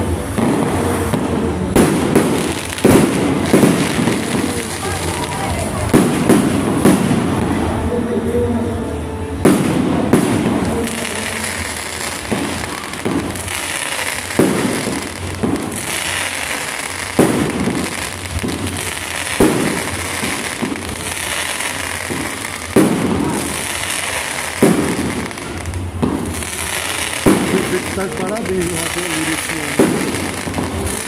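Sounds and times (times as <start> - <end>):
fireworks crackling: 0.0 - 31.0
firework shells bursting: 9.5 - 31.0.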